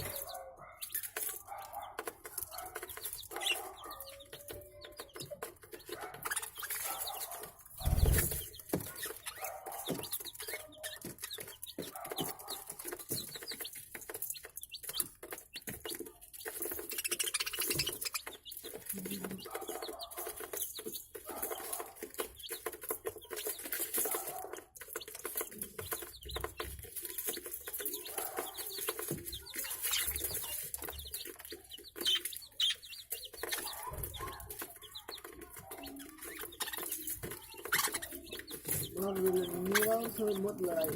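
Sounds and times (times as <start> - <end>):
budgerigars chirping: 2.4 - 4.4, 16.8 - 18.8, 27.2 - 34.4, 35.6 - 40.9.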